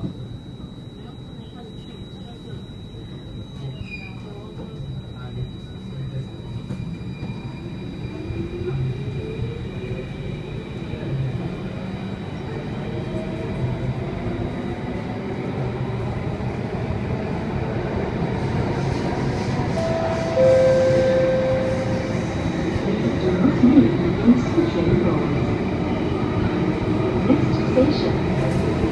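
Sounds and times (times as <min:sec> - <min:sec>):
metro train running in tunnel: 0:00.0 - 0:28.9
strong steady high tone: 0:19.7 - 0:24.0.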